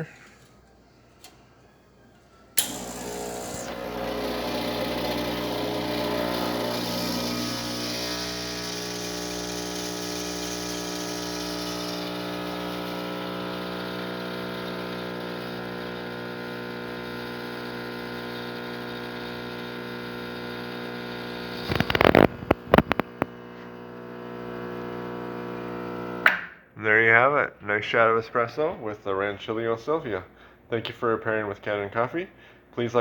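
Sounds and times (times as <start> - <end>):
espresso machine pump humming: 2.6 - 26.2.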